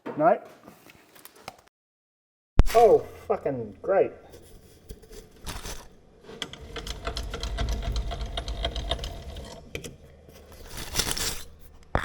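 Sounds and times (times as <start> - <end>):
metal lathe clattering: 6.2 - 10.4.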